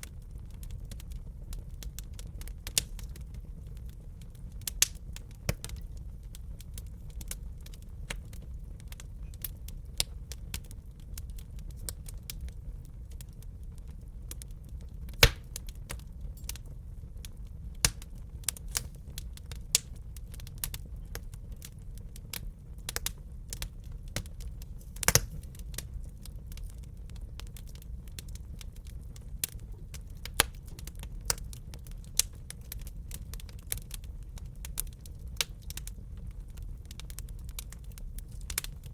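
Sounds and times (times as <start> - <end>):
low rumble of flames: 0.0 - 38.9
wood fire crackling: 0.0 - 38.9.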